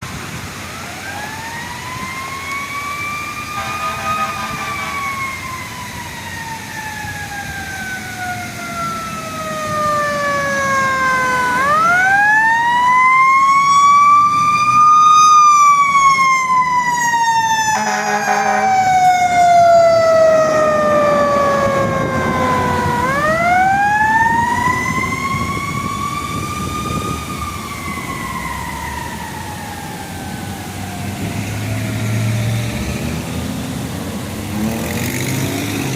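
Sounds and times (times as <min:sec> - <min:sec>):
mechanical siren wailing: 0:00.8 - 0:32.6
air horn blasts: 0:03.5 - 0:05.2, 0:17.8 - 0:18.8.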